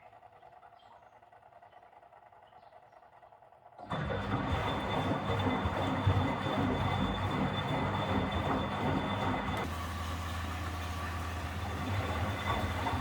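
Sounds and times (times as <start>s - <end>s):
faint washing machine hum: 0.0s - 13.0s
washing machine drum rumbling: 3.9s - 13.0s.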